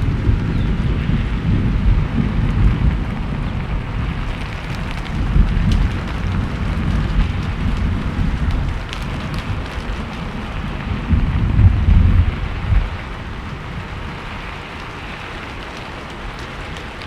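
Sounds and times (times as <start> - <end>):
low rumble: 0.0 - 14.2
steady rain: 0.0 - 17.0
drops ticking on a surface: 4.0 - 11.4.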